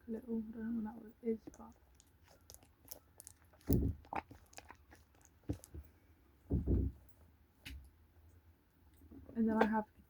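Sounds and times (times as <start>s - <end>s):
foam toys being squeezed: 1.5s - 5.8s
soft thumps: 6.5s - 7.1s.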